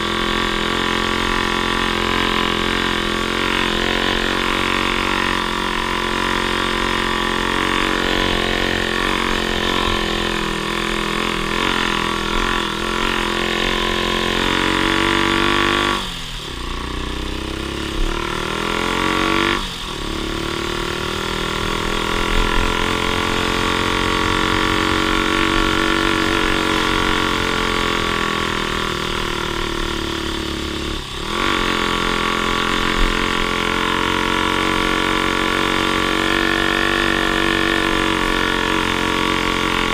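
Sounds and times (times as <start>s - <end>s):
off-road vehicle engine under load: 0.0s - 39.9s.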